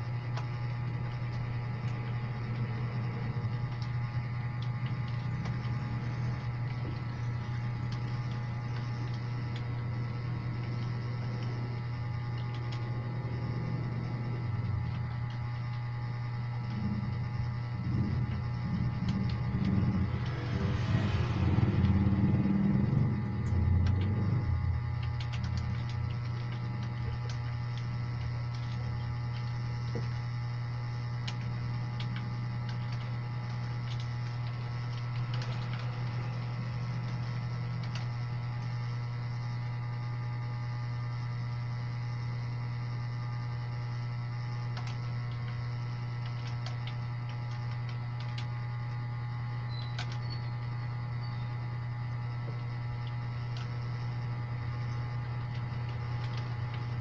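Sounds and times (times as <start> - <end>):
low electrical hum: 0.0 - 57.0
computer keyboard keys clicking: 0.3 - 15.8, 17.8 - 30.2, 31.2 - 38.7, 44.7 - 48.5, 49.7 - 50.4, 53.0 - 57.0.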